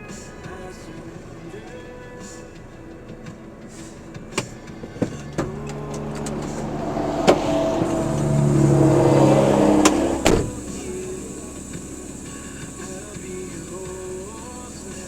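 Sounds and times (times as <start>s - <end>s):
vehicle engine and traffic noise: 0.0s - 15.0s.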